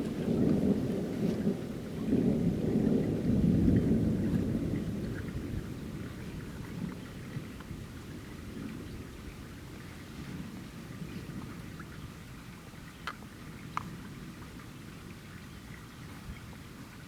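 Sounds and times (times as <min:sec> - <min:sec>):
rolling thunder rumbling: 0:00.0 - 0:07.4
rain pattering: 0:00.0 - 0:17.0.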